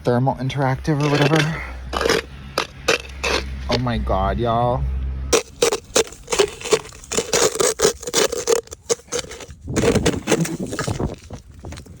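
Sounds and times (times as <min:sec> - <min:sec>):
plastic cup scraping ice: 0:01.0 - 0:03.6, 0:05.3 - 0:12.0.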